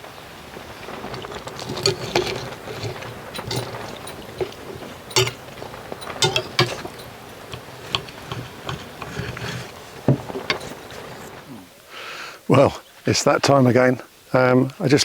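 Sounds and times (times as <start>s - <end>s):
cutlery clinking on plates: 1.0s - 11.3s.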